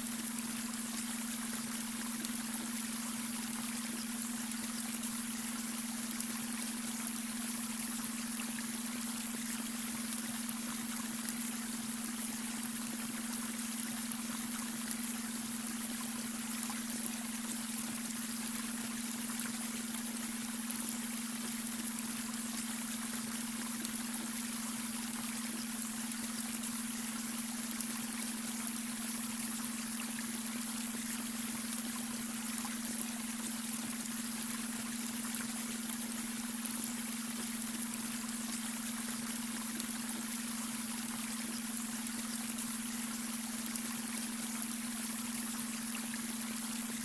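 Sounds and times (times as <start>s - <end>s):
brook water trickling over stones: 0.0s - 47.0s
steady low hum tone: 0.0s - 47.0s.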